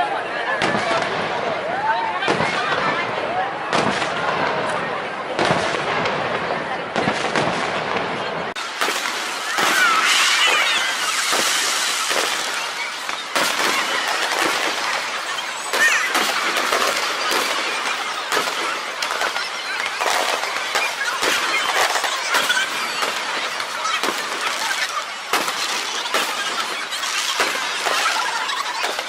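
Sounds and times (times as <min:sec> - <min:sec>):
fireworks crackling and popping: 0:00.5 - 0:29.0
firework whistling glides: 0:08.6 - 0:29.0.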